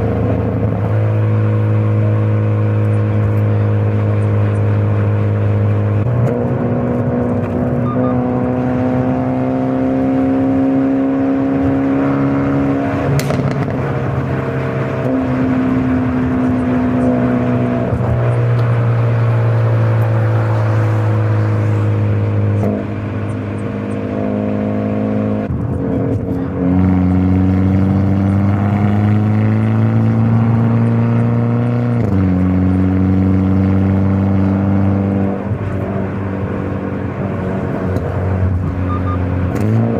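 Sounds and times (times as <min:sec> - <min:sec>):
car engine and exhaust: 0:00.0 - 0:39.9.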